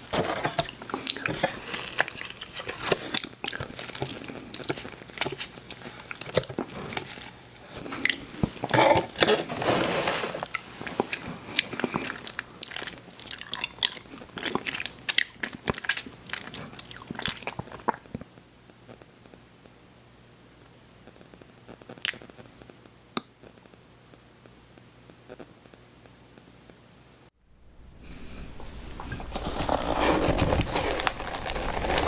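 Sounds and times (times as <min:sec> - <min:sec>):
chewing crunchy cookies: 0:00.0 - 0:18.2, 0:28.9 - 0:32.0.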